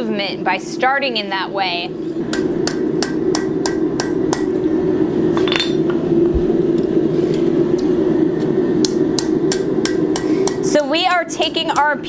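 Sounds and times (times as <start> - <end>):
hammer striking steel on anvil: 2.3 - 4.6, 5.4 - 6.0, 8.9 - 10.9
ringing metallic clink: 5.4 - 5.9.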